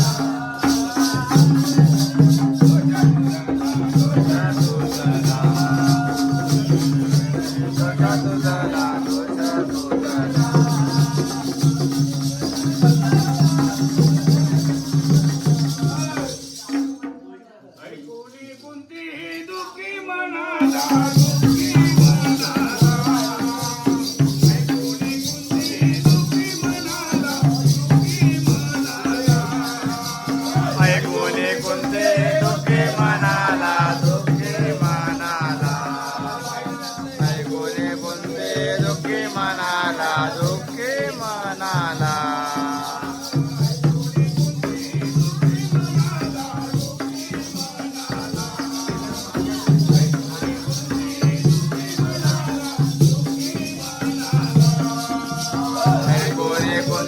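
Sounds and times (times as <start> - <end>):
person singing: 0.0 - 16.3, 19.3 - 57.0
drum beat: 0.0 - 17.2, 20.6 - 57.0
metallic jingle: 20.8 - 57.0.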